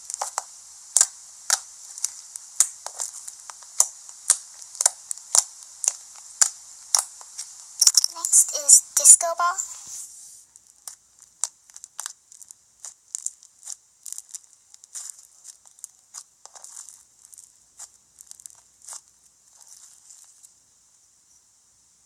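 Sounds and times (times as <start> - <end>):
slime squishing and popping: 0.1 - 7.1, 10.8 - 20.3.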